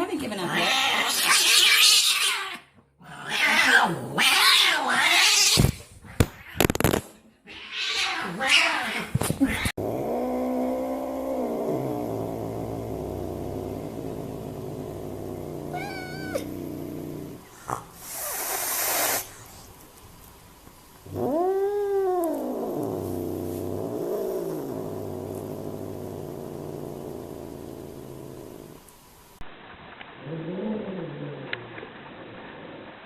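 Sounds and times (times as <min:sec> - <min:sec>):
cat growling: 0:00.4 - 0:19.7, 0:21.0 - 0:28.8, 0:30.2 - 0:32.8
cat hissing: 0:00.5 - 0:10.2, 0:17.4 - 0:19.7
cat yowling: 0:15.7 - 0:16.5.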